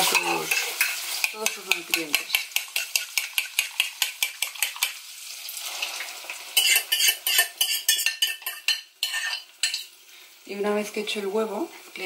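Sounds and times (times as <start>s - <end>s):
utensil tapping pan: 0.0s - 5.0s, 6.6s - 9.9s
food sizzling in hot fat: 0.0s - 12.0s.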